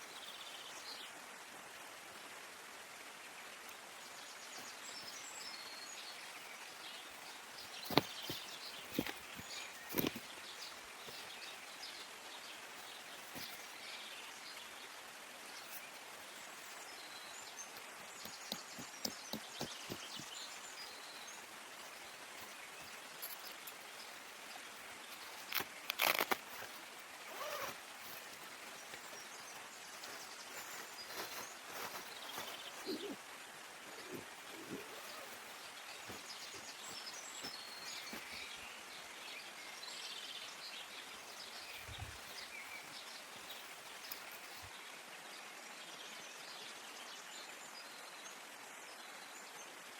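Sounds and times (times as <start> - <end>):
steady background hiss: 0.0 - 49.9
knocks and rustles: 7.8 - 10.3
bird chirps: 25.2 - 33.2, 33.8 - 38.8.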